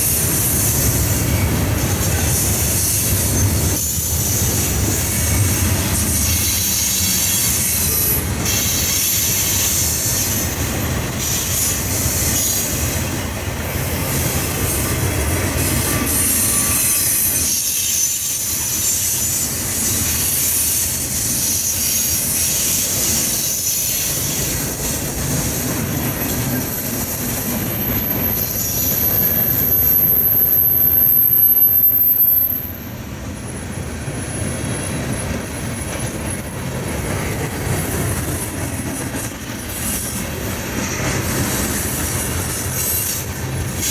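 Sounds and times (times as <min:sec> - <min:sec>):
wheel squeal: 0:00.0 - 0:13.3, 0:14.0 - 0:32.8
railroad cars rolling on rails: 0:00.0 - 0:43.9
thin high squeal: 0:14.8 - 0:24.4.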